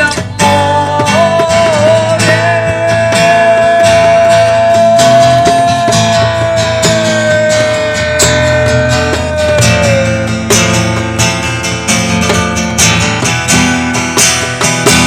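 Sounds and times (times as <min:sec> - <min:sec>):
acoustic guitar strumming: 0:00.0 - 0:15.0
person singing a held note: 0:04.3 - 0:10.5.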